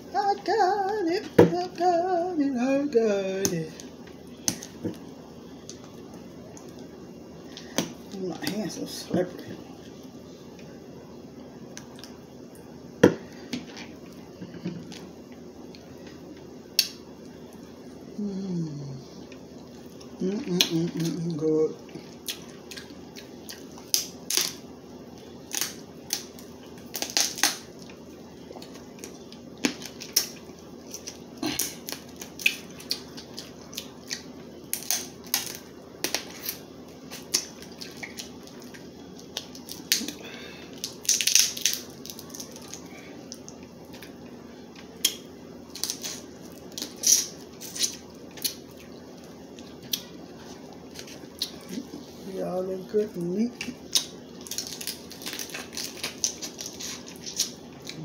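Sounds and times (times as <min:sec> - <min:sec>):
crab shells cracking: 0:22.3 - 0:24.6, 0:25.4 - 0:28.0, 0:28.6 - 0:44.2, 0:45.0 - 0:48.6, 0:53.6 - 0:57.6.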